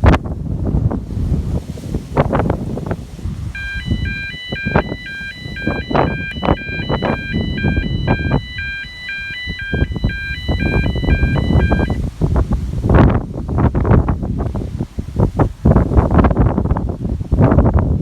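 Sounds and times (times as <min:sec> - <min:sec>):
wind buffeting microphone: 0:00.0 - 0:18.0
level crossing alarm warble: 0:03.6 - 0:12.0.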